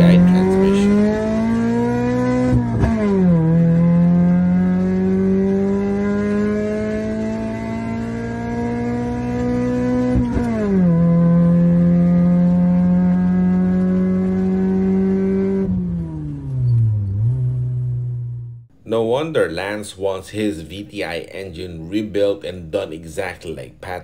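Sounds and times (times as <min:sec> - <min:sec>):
car engine at full throttle: 0:00.0 - 0:18.7.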